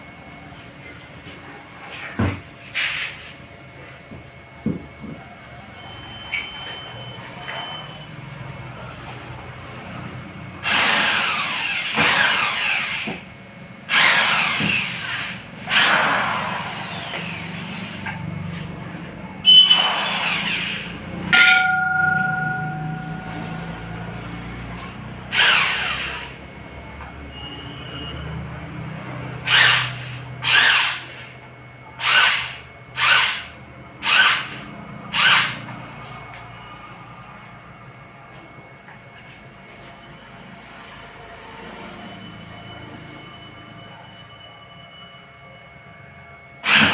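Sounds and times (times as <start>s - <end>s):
metallic ring: 21.3s - 25.2s, 39.2s - 46.4s.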